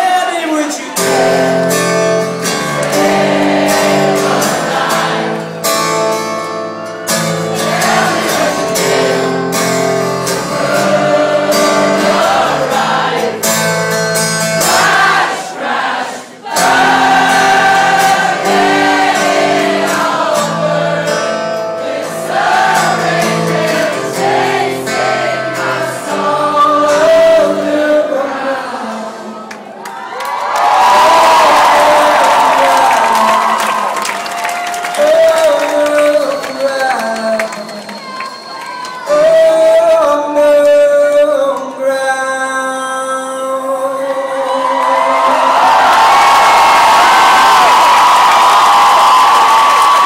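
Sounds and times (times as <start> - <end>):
acoustic guitar strumming chords: 1.0 - 29.4
crowd singing along: 1.0 - 29.8.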